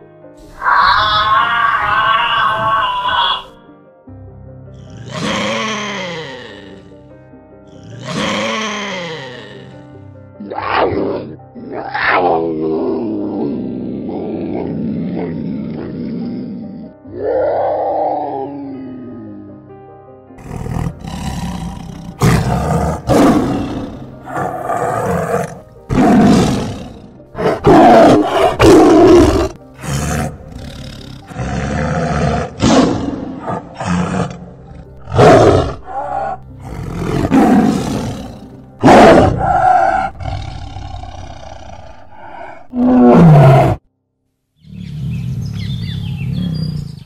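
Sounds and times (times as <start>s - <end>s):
tiger roaring and growling: 0.4s - 3.5s, 4.8s - 7.1s, 7.7s - 19.7s, 20.4s - 43.9s, 44.6s - 47.0s.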